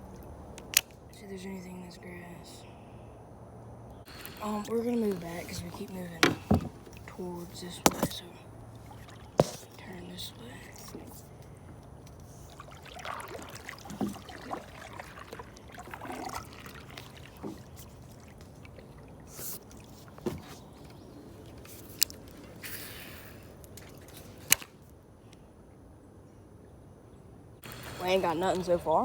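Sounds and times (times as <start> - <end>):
water splashing and trickling: 4.1 - 24.8, 27.6 - 29.0.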